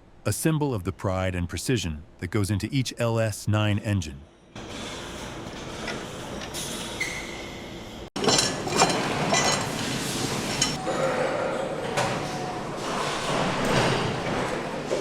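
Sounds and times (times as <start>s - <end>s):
metal tools clinking and knocking: 8.2s - 9.8s, 10.5s - 10.8s.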